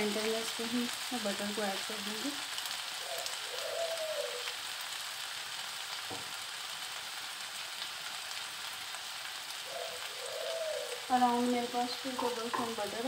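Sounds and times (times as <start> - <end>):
food sizzling in frying pan: 0.0 - 13.0
soft knock: 6.1 - 6.3.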